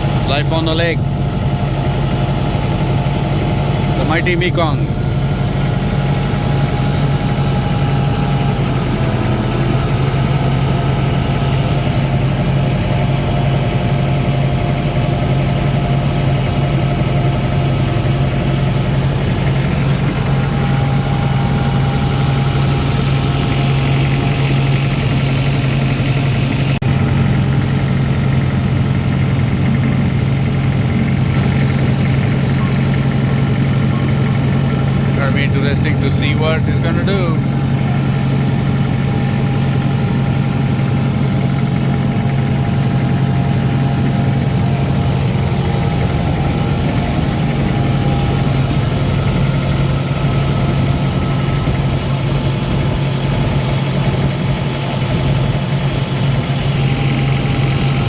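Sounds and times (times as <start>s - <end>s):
motorboat engine humming: 0.0s - 58.0s.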